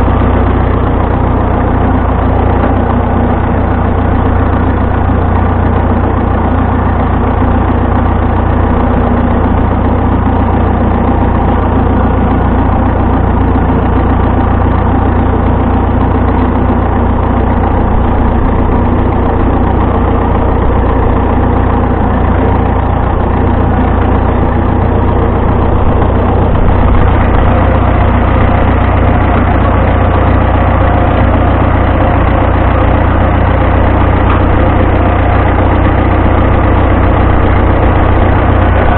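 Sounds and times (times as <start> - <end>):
tractor engine rumbling: 0.0 - 38.9.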